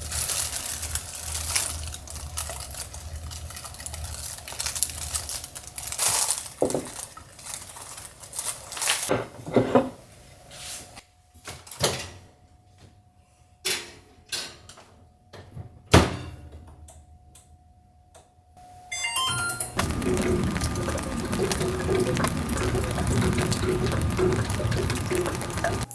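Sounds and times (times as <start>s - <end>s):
faint steady hum: 18.6s - 25.9s
hard objects knocking and clattering: 19.8s - 25.9s.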